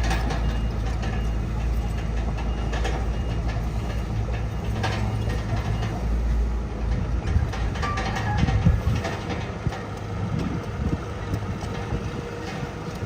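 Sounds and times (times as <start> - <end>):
bulldozer diesel engine running: 0.0 - 13.0
metallic clanks from tracks: 0.0 - 13.0.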